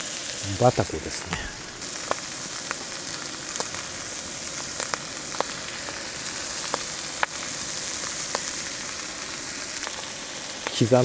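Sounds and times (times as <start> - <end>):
meat sizzling on iron plate: 0.0 - 11.0.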